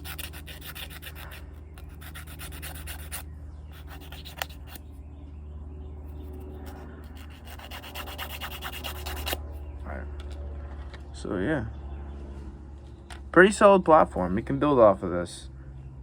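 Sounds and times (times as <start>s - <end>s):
hand sanding strokes: 0.0s - 4.8s, 6.1s - 9.4s
steady low hum: 0.0s - 16.0s.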